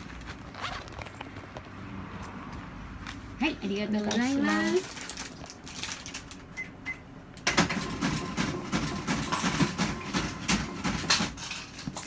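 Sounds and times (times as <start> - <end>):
cash register clicking and rattling: 7.4 - 12.0.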